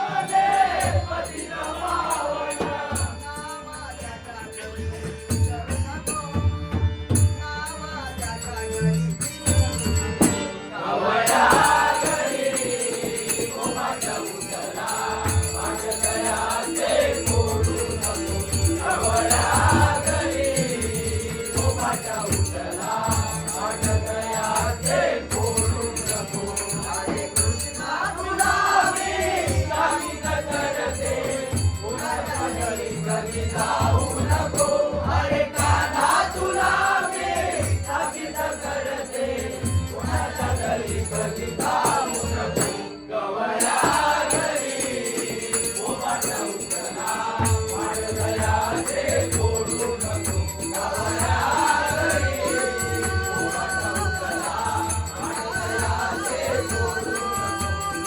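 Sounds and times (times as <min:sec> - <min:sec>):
voices singing: 0:00.0 - 0:06.4, 0:07.4 - 0:58.0
jingling percussion: 0:00.0 - 0:58.0
steady drum beat: 0:11.3 - 0:38.5, 0:47.1 - 0:58.0.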